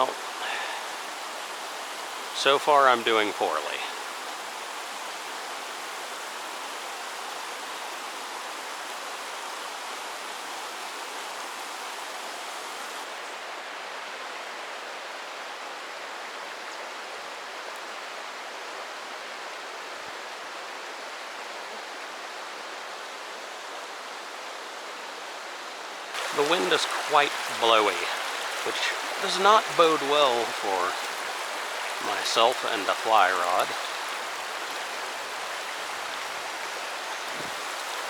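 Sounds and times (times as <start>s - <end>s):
water rushing over rocks: 25.8s - 38.0s.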